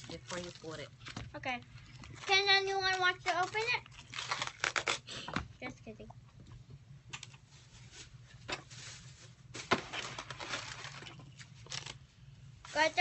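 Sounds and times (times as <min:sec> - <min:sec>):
food packaging rustling: 0:01.9 - 0:05.0, 0:07.2 - 0:12.0.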